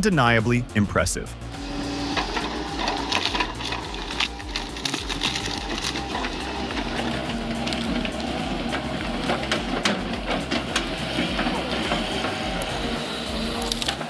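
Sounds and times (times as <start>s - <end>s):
excavator engine rumble: 1.2s - 14.0s
wood cracking and clicking: 1.6s - 12.8s.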